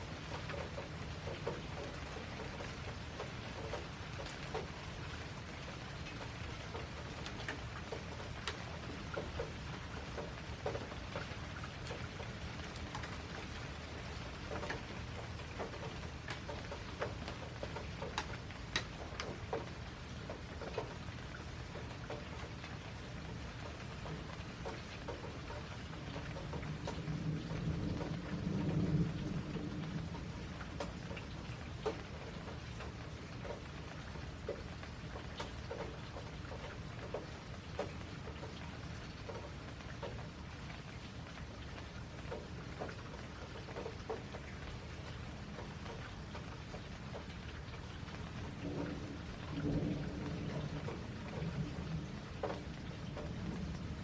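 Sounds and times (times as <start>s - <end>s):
raindrops ticking on a surface: 0.0s - 54.0s
steady rain: 0.0s - 54.0s
low rumble of thunder: 21.6s - 54.0s.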